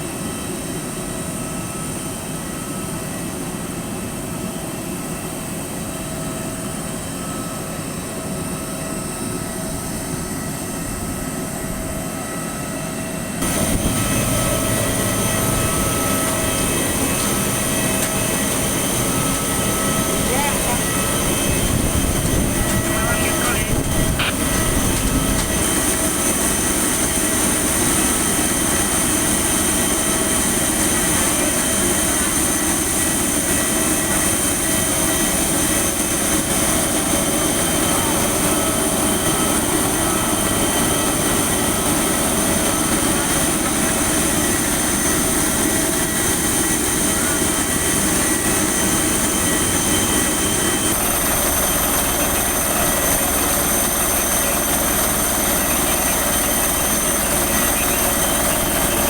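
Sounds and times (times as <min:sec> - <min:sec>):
high-pitched engine whines: 0:04.7 - 0:59.0
jet engines rushing: 0:13.2 - 0:59.0.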